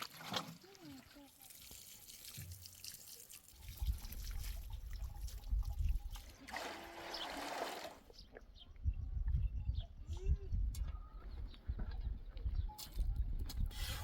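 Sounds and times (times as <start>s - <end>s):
liquid trickling and pouring: 0.0s - 8.1s.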